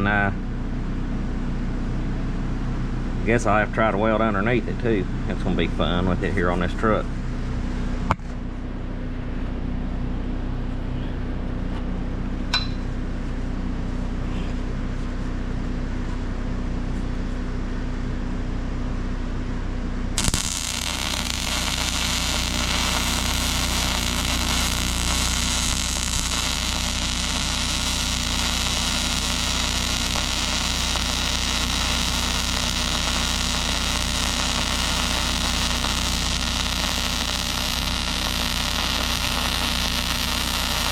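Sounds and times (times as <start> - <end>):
electrical hum: 0.0 - 40.9
arc welding crackling hiss: 20.2 - 40.9.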